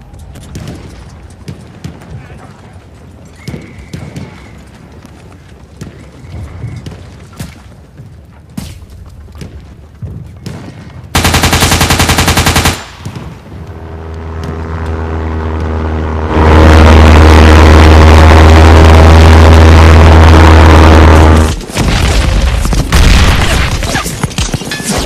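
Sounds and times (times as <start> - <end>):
machine-gun fire: 11.2 - 13.4.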